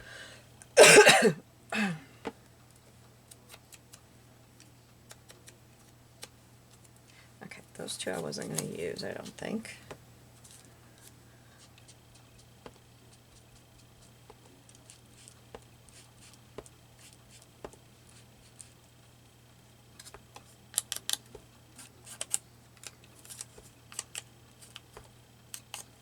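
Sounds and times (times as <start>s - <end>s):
low steady hum: 0.0s - 26.0s
paper and tools clicking: 5.1s - 6.9s, 20.0s - 26.0s.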